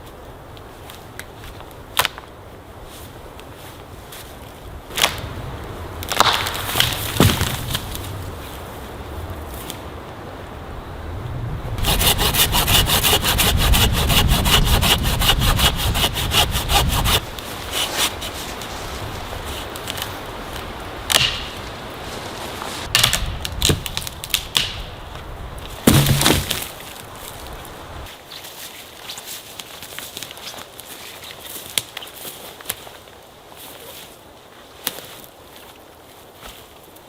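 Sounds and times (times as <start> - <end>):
wood knocking and cracking: 6.0 - 8.1, 22.9 - 24.9, 25.7 - 26.9
hand saw cutting wood: 11.8 - 18.6, 25.9 - 26.6.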